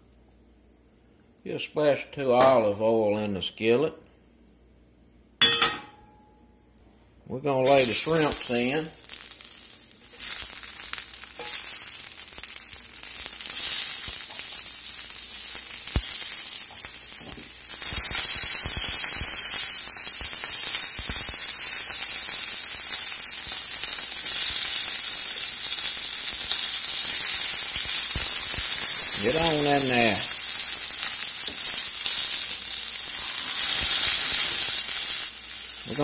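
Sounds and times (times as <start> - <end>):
shrimp sizzling in hot oil: 7.6 - 36.0.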